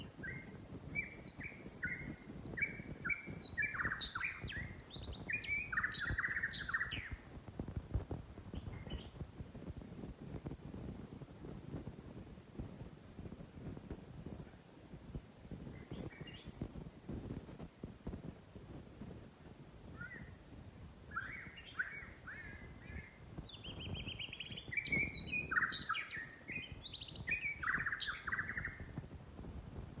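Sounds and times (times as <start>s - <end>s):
bird singing whistled notes: 0.1s - 7.3s, 8.5s - 9.2s, 15.8s - 16.6s, 19.9s - 20.4s, 21.1s - 29.0s.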